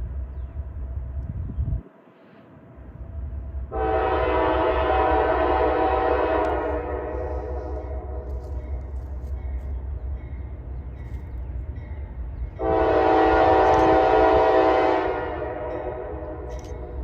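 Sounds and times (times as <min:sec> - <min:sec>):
freight train rumble: 0:00.0 - 0:17.0
locomotive horn blast: 0:03.7 - 0:08.8, 0:12.6 - 0:16.5.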